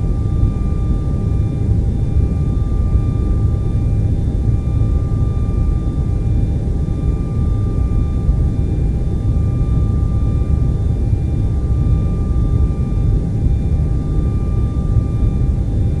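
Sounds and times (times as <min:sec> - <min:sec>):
faint steady whine: 0:00.0 - 0:16.0.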